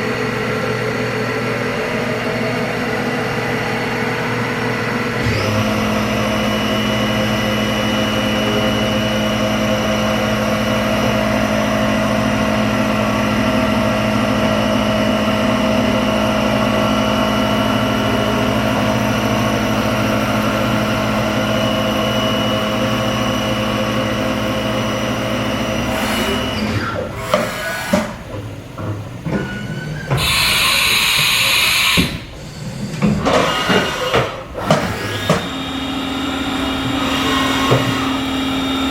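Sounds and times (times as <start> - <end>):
machine hum with whining tones: 0.0 - 38.9
hiss: 29.7 - 35.1.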